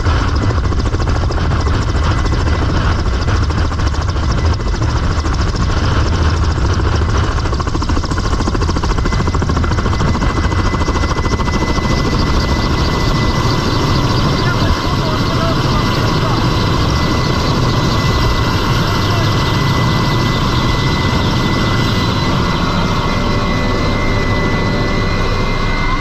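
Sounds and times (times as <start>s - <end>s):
helicopter rotor and engine rumble: 0.0s - 26.0s
high turbine whine: 0.0s - 26.0s.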